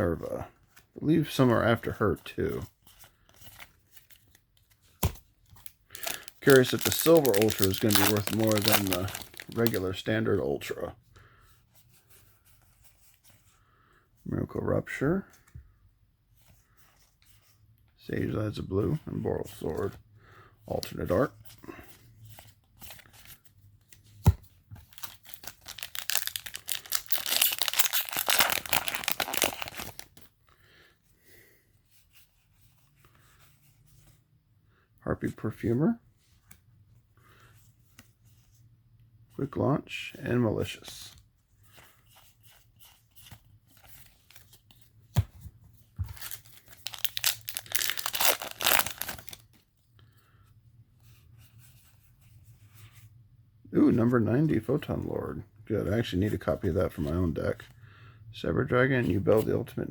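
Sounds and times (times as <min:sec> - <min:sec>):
cards rustling: 0:00.5 - 0:14.0, 0:20.7 - 0:34.2, 0:40.3 - 0:50.4
foil pack crinkling and tearing: 0:05.9 - 0:09.9, 0:24.9 - 0:30.2, 0:46.2 - 0:49.5.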